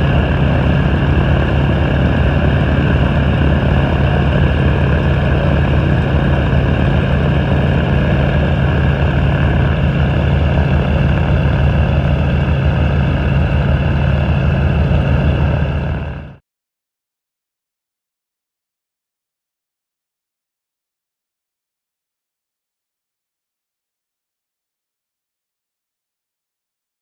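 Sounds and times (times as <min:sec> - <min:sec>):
helicopters droning: 0:00.0 - 0:16.4
high turbine whine: 0:00.0 - 0:16.4.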